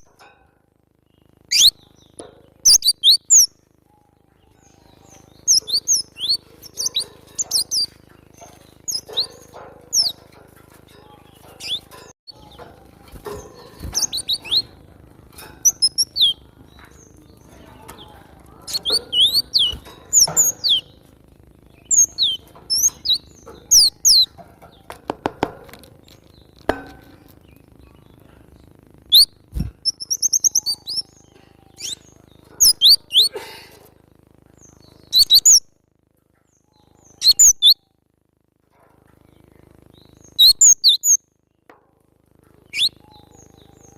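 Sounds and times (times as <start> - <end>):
faint low hum: 0.0 - 43.9
bird singing high chirps: 1.0 - 10.3, 11.0 - 14.8, 15.6 - 25.0, 27.4 - 33.3, 34.6 - 35.7, 36.5 - 38.0, 39.9 - 41.3, 42.6 - 43.9.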